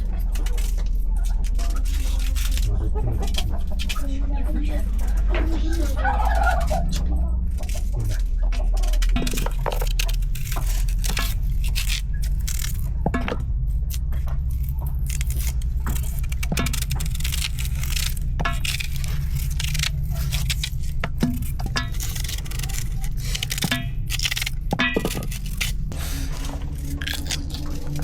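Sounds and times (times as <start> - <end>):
steady low rumble: 0.0 - 28.0
small hard objects clinking: 7.6 - 28.0.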